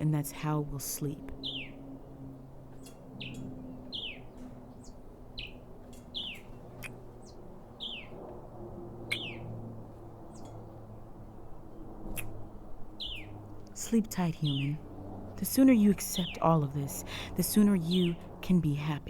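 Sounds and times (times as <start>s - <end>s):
birds chirping: 0.0s - 19.0s
faint low hum: 0.0s - 19.0s
light clicks: 5.8s - 7.0s.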